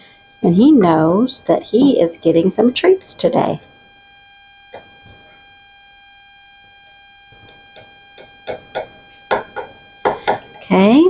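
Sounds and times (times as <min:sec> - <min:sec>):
high-pitched electrical whine: 0:00.0 - 0:11.0
knife tapping in baking pan: 0:08.5 - 0:10.5.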